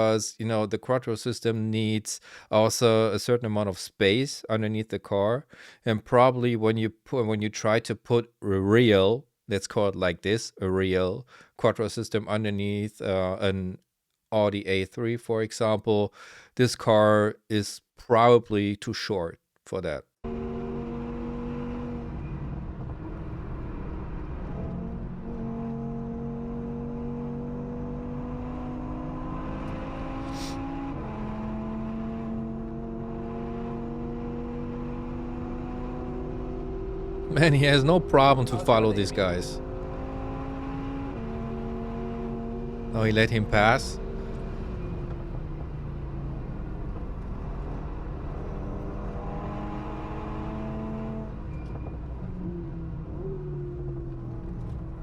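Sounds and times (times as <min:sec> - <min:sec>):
car engine accelerating: 0:20.2 - 0:55.0
engine pulling hard: 0:28.7 - 0:32.6.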